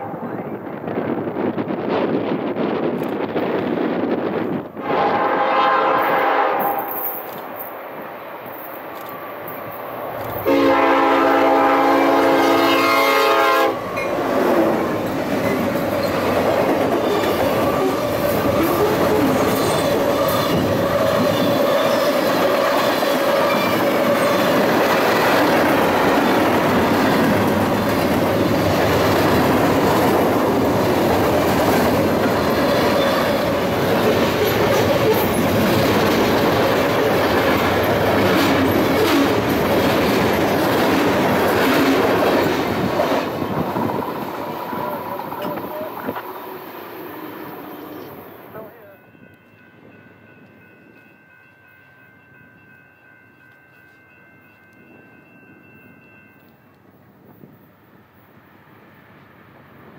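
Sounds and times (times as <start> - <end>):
locomotive air horn: 4.8 - 7.0, 10.4 - 13.8
train wheels clacking on rails: 13.8 - 46.4.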